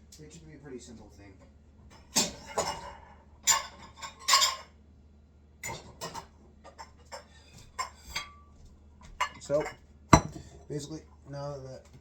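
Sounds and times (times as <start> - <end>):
kitchen utensils clinking: 2.1 - 4.7, 9.2 - 10.7.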